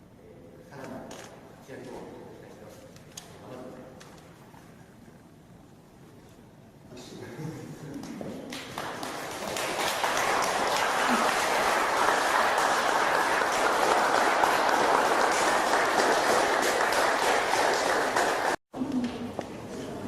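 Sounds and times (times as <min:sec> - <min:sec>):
audience applauding: 0:08.5 - 0:18.6.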